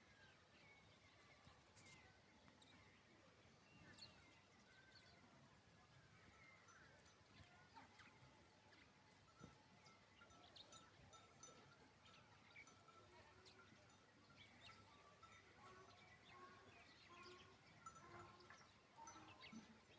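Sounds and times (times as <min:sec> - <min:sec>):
distant animal chirps and bleats: 0:09.8 - 0:19.9.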